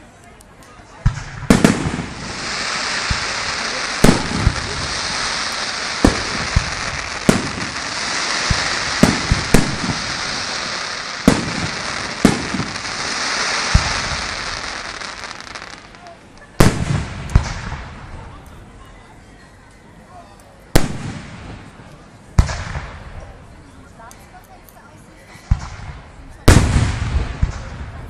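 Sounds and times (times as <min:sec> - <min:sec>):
fireworks sharp bangs: 0:01.0 - 0:16.0, 0:16.6 - 0:18.3, 0:20.8 - 0:21.8, 0:22.4 - 0:23.2, 0:25.5 - 0:28.0
fireworks hissing crackle: 0:01.2 - 0:18.3.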